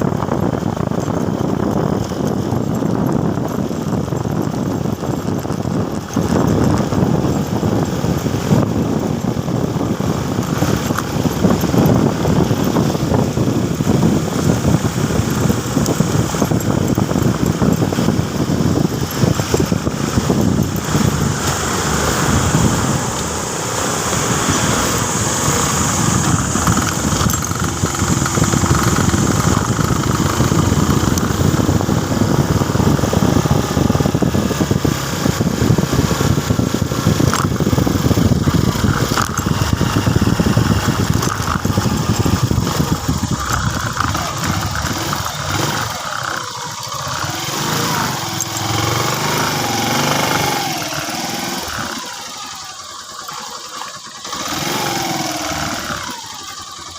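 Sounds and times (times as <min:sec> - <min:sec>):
motorcycle engine rumble: 0:00.0 - 0:56.9
road noise: 0:00.0 - 0:56.9.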